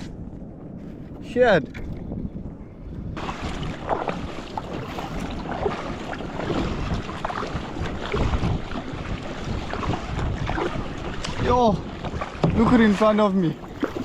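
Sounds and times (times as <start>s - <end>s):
wind buffeting microphone: 0.0s - 14.0s
water slapping and splashing: 3.0s - 14.0s
knocks on paddle ski: 9.8s - 13.0s.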